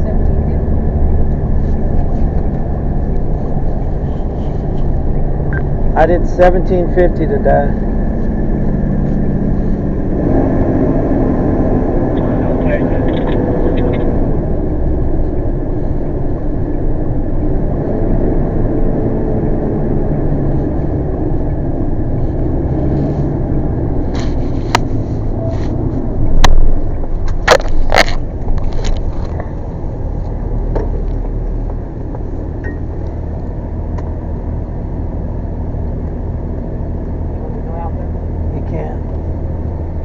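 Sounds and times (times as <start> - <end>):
vehicle engine rumbling: 0.0 - 40.0
sharp clicks and knocks: 25.7 - 29.6.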